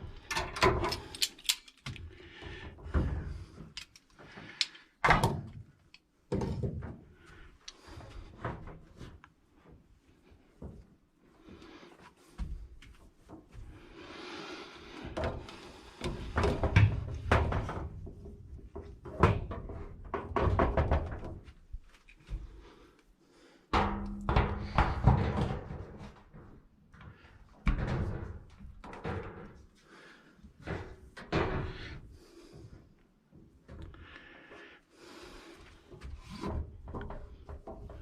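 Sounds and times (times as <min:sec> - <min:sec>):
objects knocking and rattling: 0:15.1 - 0:21.6, 0:23.8 - 0:29.8, 0:36.0 - 0:38.0.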